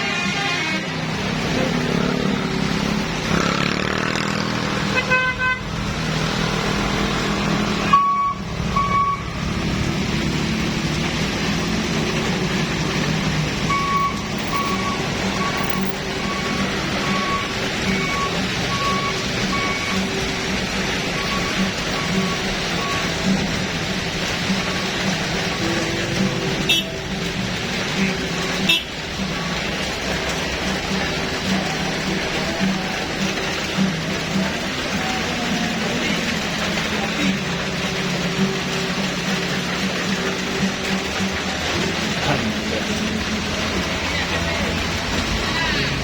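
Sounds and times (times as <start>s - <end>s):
heavy truck engine running: 0.8s - 46.0s
repeating reversing beeps: 7.9s - 9.4s, 13.7s - 20.1s.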